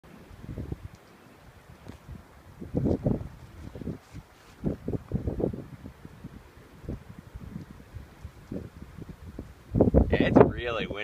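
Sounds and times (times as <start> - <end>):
wind buffeting microphone: 0.1 - 11.0.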